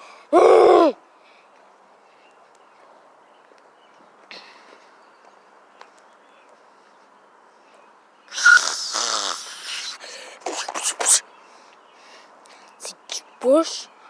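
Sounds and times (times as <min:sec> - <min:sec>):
person making raspy snore-like noise: 0:08.3 - 0:10.2
faint hiss: 0:08.3 - 0:11.3
short breathy bursts: 0:08.3 - 0:12.8.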